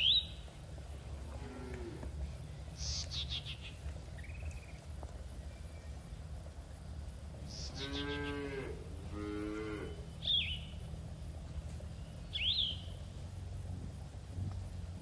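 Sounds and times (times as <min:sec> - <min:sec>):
cattle mooing: 0:01.2 - 0:02.1, 0:07.6 - 0:10.0.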